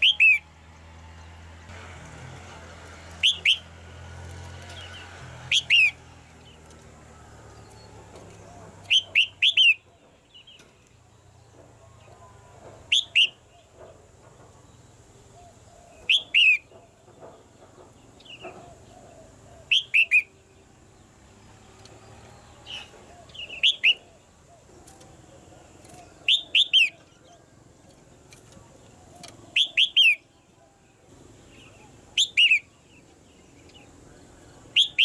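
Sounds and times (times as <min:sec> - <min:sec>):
bird chirping phrases: 0:00.0 - 0:01.4, 0:03.2 - 0:03.7, 0:04.6 - 0:13.8, 0:14.6 - 0:17.1, 0:18.0 - 0:35.0
faint bird sounds: 0:04.5 - 0:35.0.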